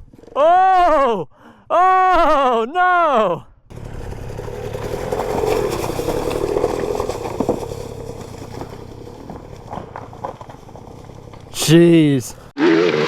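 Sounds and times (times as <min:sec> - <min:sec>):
dirt bike engine running hard: 0:03.7 - 0:11.6.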